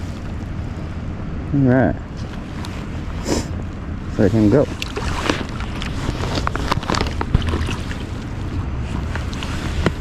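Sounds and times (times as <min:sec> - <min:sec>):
river water running: 0:02.1 - 0:10.0.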